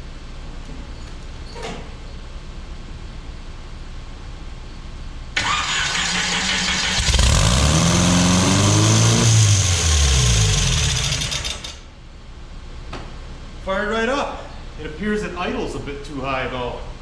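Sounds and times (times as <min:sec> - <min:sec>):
engine firing and revving: 0:05.4 - 0:11.8
engine starter cranking: 0:05.4 - 0:11.8.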